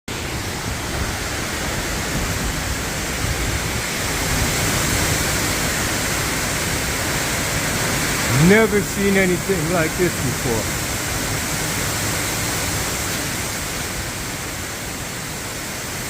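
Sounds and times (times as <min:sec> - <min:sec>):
strong wind buffeting microphone: 0:00.2 - 0:08.3.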